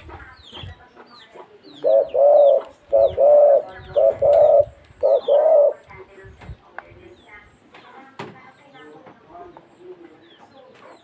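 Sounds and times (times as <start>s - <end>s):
bird giving low two-part calls: 1.8s - 5.8s.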